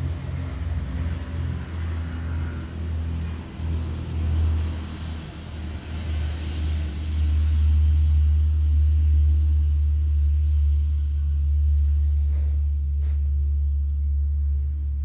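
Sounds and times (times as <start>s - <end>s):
loud low rumble: 7.6s - 15.0s.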